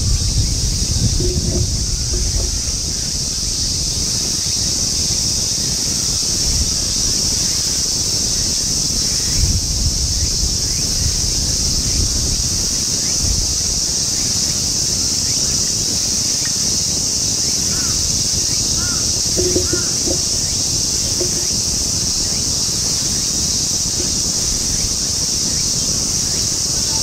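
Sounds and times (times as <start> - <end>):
steady high-pitched hiss: 0.0 - 27.0
wind rumbling on microphone: 0.0 - 27.0.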